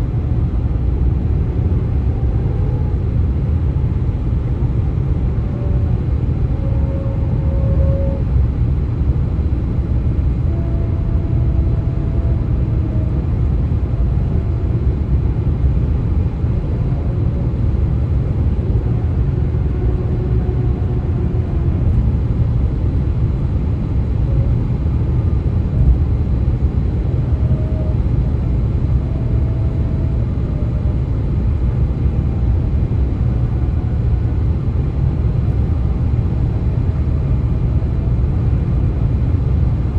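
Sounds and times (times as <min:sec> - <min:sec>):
road noise rumble: 0:00.0 - 0:39.9
faint wavering tones: 0:05.3 - 0:08.4.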